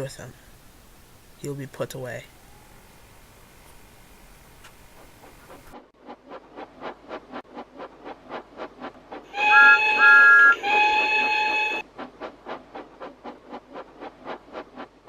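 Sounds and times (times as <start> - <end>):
steam locomotive chuffing: 0.0 - 15.0
locomotive chime whistle: 9.3 - 11.8.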